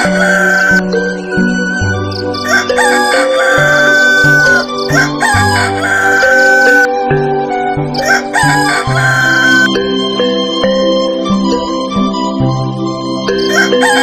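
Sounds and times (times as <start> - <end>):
rooster crowing: 0.0 - 0.9, 2.2 - 6.9, 8.0 - 9.7, 13.4 - 14.0
background music: 0.0 - 14.0.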